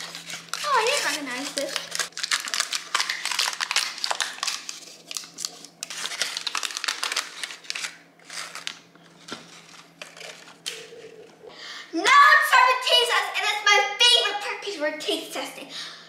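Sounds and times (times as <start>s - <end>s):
paper cupcake liners crinkling: 0.0s - 11.0s.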